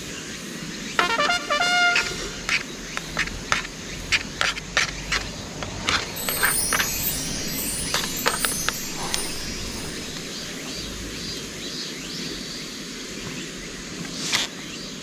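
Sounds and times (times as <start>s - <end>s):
river flowing: 6.2s - 11.4s
faint chirps: 6.2s - 11.6s.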